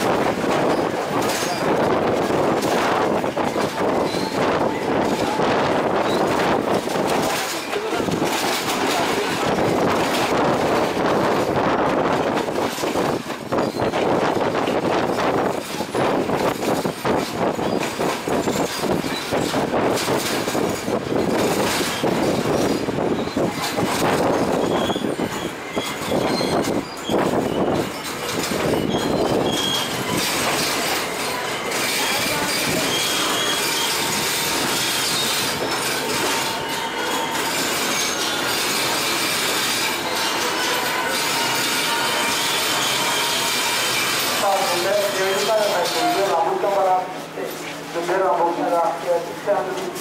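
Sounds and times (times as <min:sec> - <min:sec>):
rattles and knocks: 0:00.0 - 0:25.1, 0:26.1 - 0:33.6
train wheels rumbling on rails: 0:00.0 - 0:50.0
thin wheel squeal: 0:04.0 - 0:04.4, 0:24.5 - 0:46.4.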